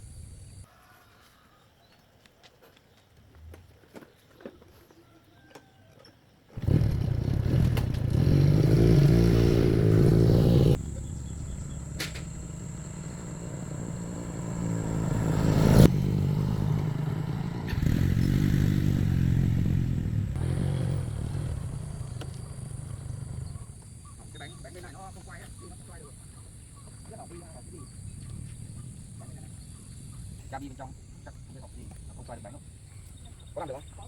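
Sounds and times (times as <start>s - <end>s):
motorcycle engine running: 6.6s - 24.9s.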